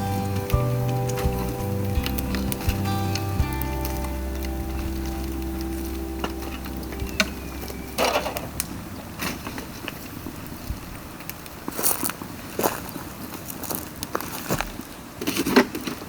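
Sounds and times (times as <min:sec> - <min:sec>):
music track held notes: 0:00.0 - 0:11.4
bamboo crackling in fire: 0:00.0 - 0:16.0.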